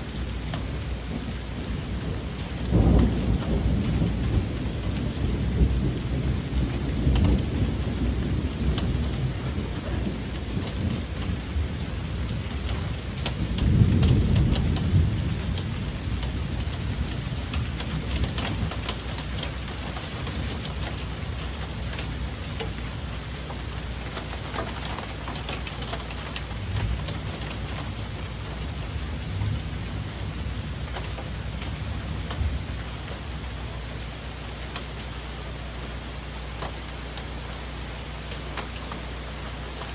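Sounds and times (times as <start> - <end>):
rain falling on foliage: 0.0 - 39.9
thunder rolling: 1.1 - 19.1
single raindrops ticking: 12.5 - 28.6, 30.8 - 39.9.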